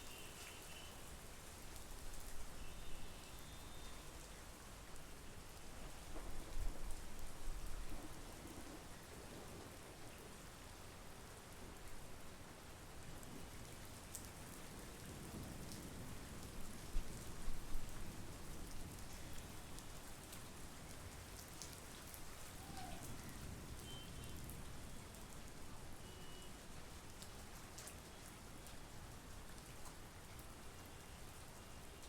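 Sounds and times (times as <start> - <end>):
heavy rain falling: 13.2 - 32.0.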